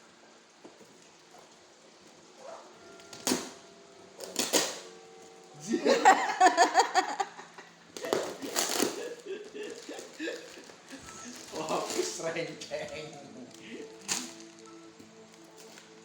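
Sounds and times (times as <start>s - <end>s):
voice or laughter: 5.6s - 7.7s
packaging crinkling and tearing: 8.0s - 16.0s.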